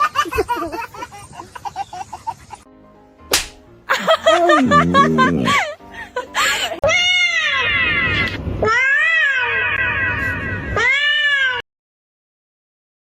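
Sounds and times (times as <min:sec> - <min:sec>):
cat meowing loudly: 0:06.9 - 0:11.6.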